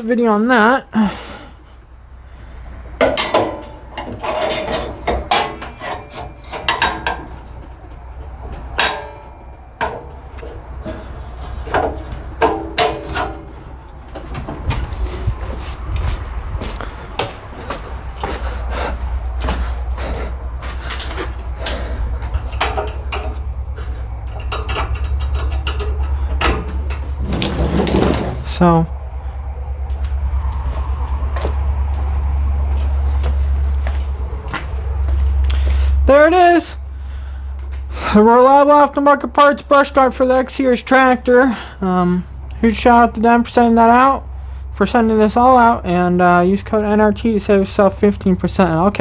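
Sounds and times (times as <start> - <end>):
low steady hum: 0.0 - 49.0
metal tools clinking: 3.0 - 7.6, 20.8 - 28.0
metallic knocks and clanks: 3.0 - 14.8, 19.4 - 28.5.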